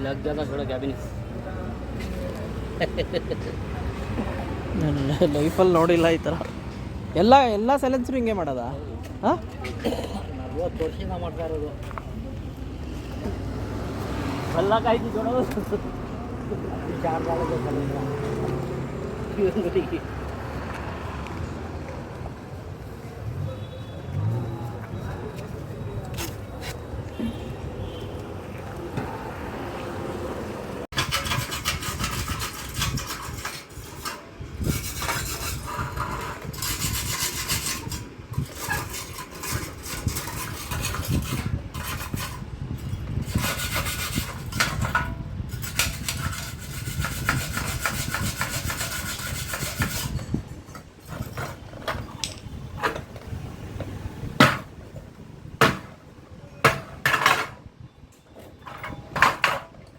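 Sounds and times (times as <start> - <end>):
metal tool scraping exhaust: 30.9 - 53.3
sharp metal knocks: 54.4 - 54.8, 55.6 - 57.6.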